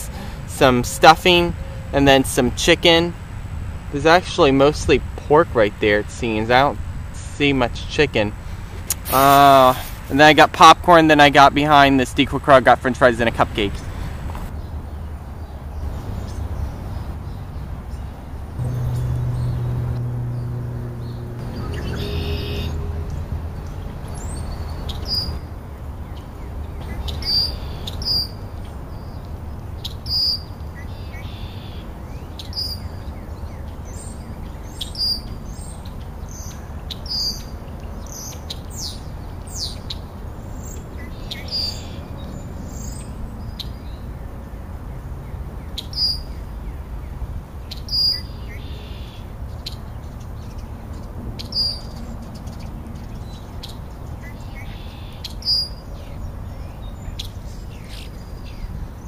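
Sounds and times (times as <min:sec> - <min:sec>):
bird chirping: 0:13.7 - 0:44.1, 0:47.6 - 0:59.0
low background rumble: 0:16.8 - 0:24.8
birds high falling notes: 0:18.6 - 0:23.2.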